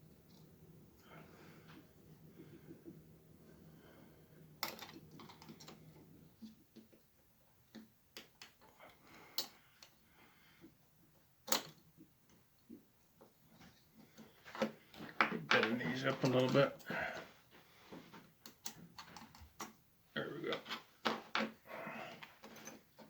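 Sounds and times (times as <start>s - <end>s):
small plastic and metal parts clicking: 4.6s - 5.8s.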